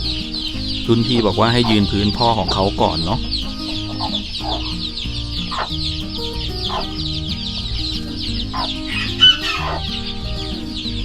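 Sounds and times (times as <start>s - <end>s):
background music with low notes: 0.0s - 11.0s
chicks peeping: 0.0s - 11.0s
hen clucking: 0.8s - 11.0s.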